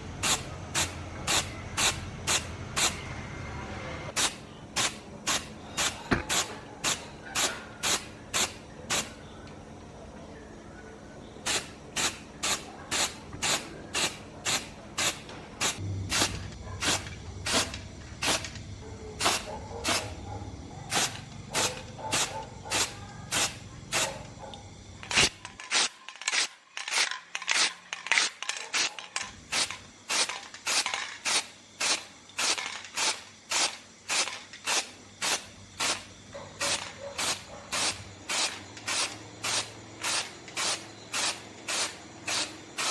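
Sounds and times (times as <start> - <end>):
short hissing strokes: 0.0 - 3.0, 4.1 - 9.2, 11.4 - 20.3, 20.9 - 24.4, 25.0 - 42.9.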